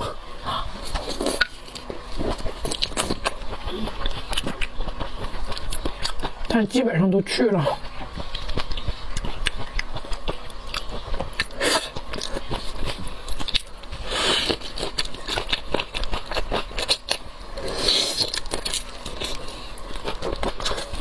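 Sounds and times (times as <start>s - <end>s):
chewing shrimp shells crackling: 0.8s - 6.7s, 7.8s - 21.0s.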